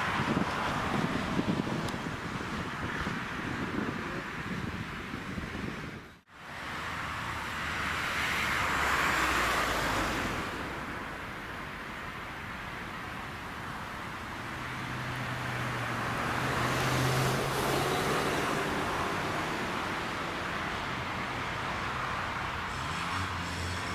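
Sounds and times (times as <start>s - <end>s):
road traffic noise: 0.0s - 23.9s
motor vehicle passing: 14.3s - 23.9s.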